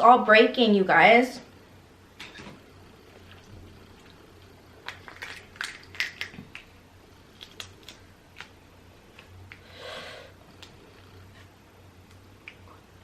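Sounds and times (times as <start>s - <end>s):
crawfish shells cracking: 3.1s - 9.6s.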